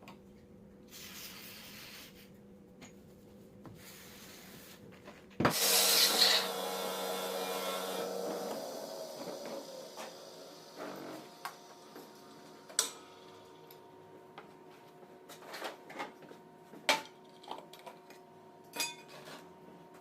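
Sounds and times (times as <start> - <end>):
metal scraping rasp: 5.6 - 11.4.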